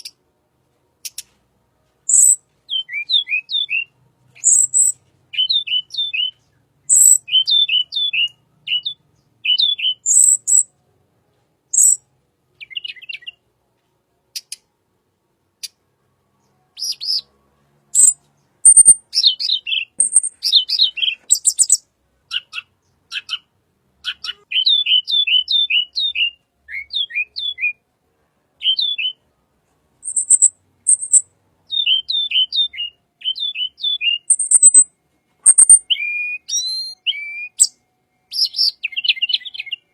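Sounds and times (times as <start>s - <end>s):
high bird chips: 2.1s - 2.4s, 4.4s - 5.0s, 6.0s - 7.5s, 18.0s - 22.6s, 30.0s - 31.2s, 34.3s - 34.8s, 35.4s - 35.9s
bird singing downward notes: 2.1s - 10.6s, 11.8s - 12.0s, 18.0s - 27.8s, 28.6s - 29.2s, 30.0s - 39.9s.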